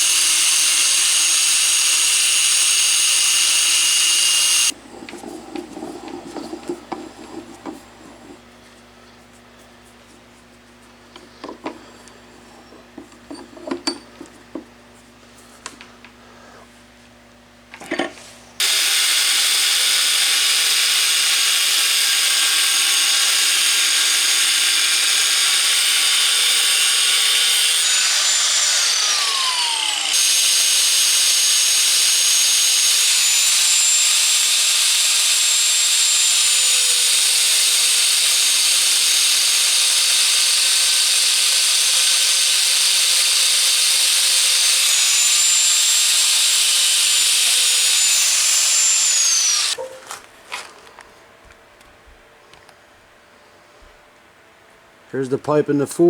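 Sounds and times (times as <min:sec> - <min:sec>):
high-speed motor whining: 0:00.0 - 0:04.8, 0:18.6 - 0:49.8.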